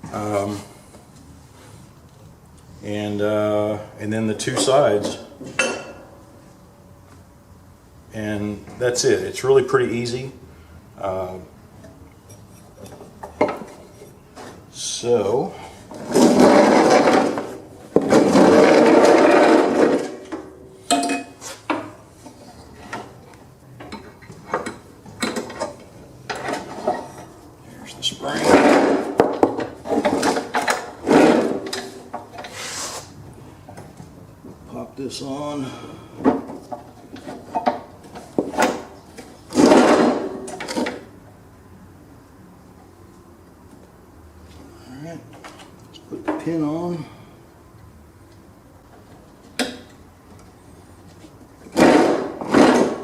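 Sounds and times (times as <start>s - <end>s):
metal scraping: 15.9s - 20.3s.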